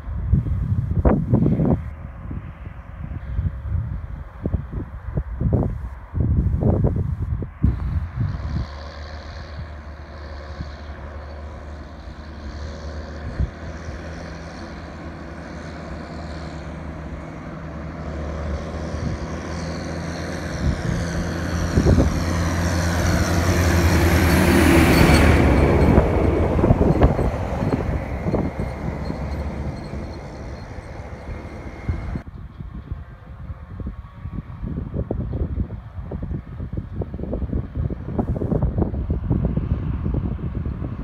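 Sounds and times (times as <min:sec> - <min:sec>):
heavy machinery engine drone: 0:05.5 - 0:34.5
high machine whine: 0:25.4 - 0:32.2.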